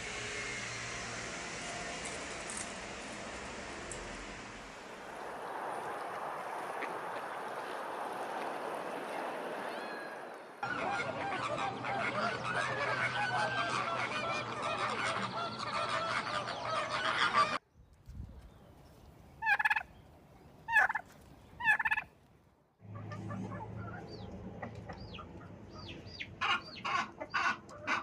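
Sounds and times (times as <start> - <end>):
turkeys calling: 5.2 - 17.6, 19.4 - 20.0, 20.6 - 22.1, 22.9 - 28.0
turkey gobbles: 9.7 - 17.6, 19.4 - 19.9, 20.7 - 22.1, 22.9 - 28.0.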